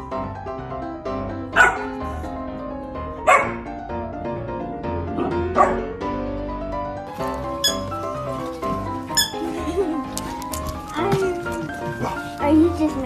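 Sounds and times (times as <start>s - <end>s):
background music: 0.0s - 13.0s
puppy barking: 1.5s - 2.0s, 3.2s - 3.6s, 5.1s - 6.0s, 7.2s - 9.5s, 11.1s - 12.4s.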